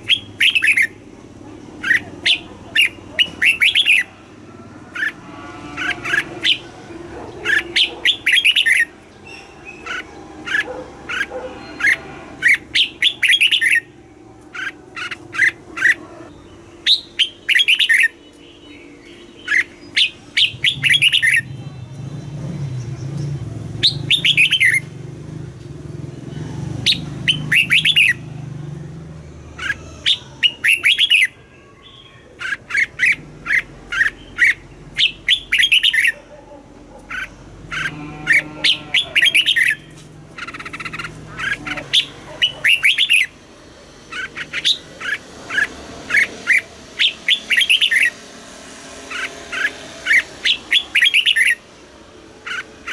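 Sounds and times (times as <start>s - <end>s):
bulbul whistled song: 16.4s - 21.5s, 23.8s - 24.9s, 26.9s - 28.2s, 49.1s - 51.6s.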